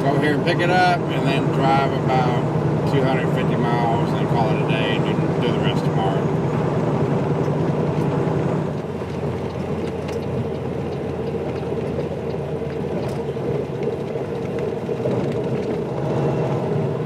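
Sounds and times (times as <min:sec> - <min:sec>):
road noise: 0:00.0 - 0:17.0
truck diesel engine drone: 0:00.0 - 0:17.0.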